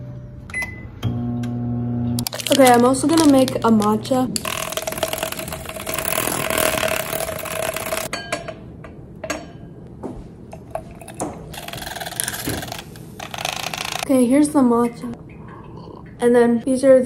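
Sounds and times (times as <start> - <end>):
milk frother whirring: 4.4 - 8.1, 11.6 - 14.0.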